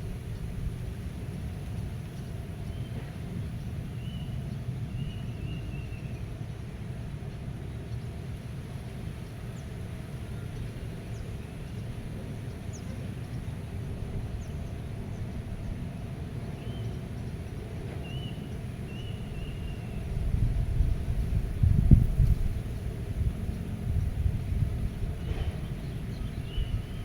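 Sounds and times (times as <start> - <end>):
birds chirping: 25.1 - 27.0.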